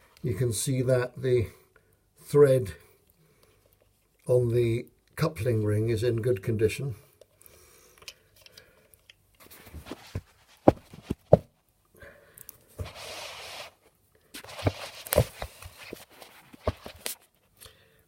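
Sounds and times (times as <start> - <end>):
rustling: 9.4 - 11.6, 12.6 - 17.6.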